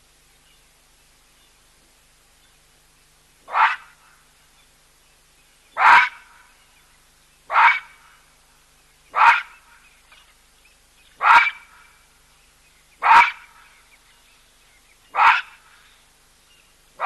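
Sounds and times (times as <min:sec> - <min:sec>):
baboon barking calls: 0:03.4 - 0:04.1, 0:05.7 - 0:06.5, 0:07.5 - 0:08.2, 0:09.1 - 0:09.8, 0:11.2 - 0:12.0, 0:13.0 - 0:13.8, 0:15.1 - 0:15.9.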